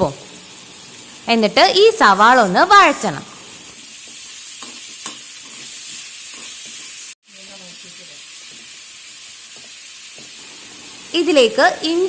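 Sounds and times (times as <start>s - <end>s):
onions sizzling in oil: 0.0s - 12.0s
faint stirring scrapes: 4.0s - 6.9s.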